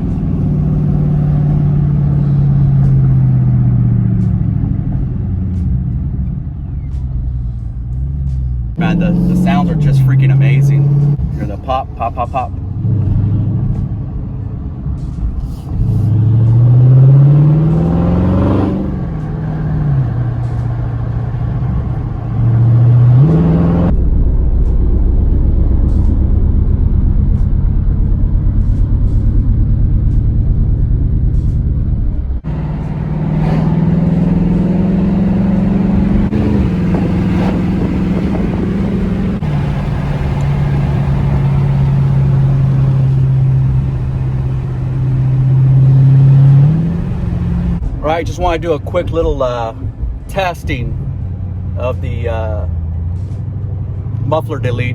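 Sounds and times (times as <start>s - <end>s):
car engine revving: 0.0s - 54.9s
loud exhaust rumble: 0.0s - 54.9s.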